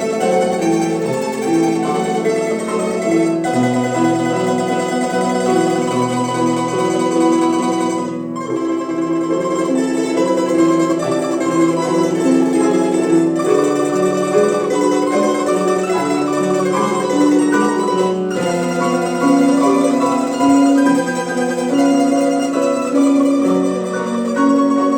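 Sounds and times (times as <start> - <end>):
plucked string quartet melody: 0.0 - 24.9.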